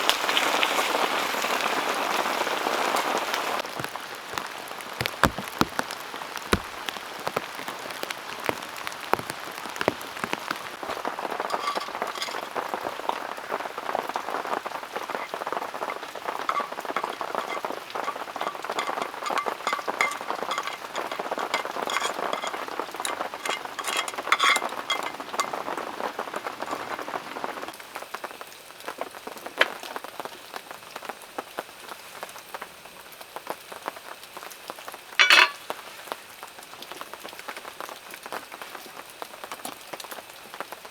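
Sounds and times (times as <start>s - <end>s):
heavy rain falling: 0.0s - 31.8s
loud clatter: 16.5s - 25.5s.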